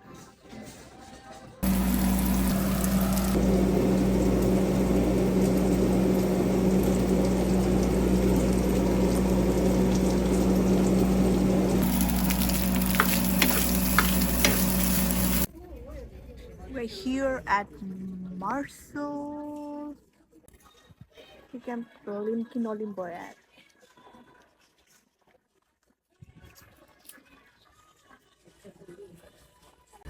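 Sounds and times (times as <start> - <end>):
food sizzling in a pan: 1.6 - 15.5
low hum: 1.6 - 15.5.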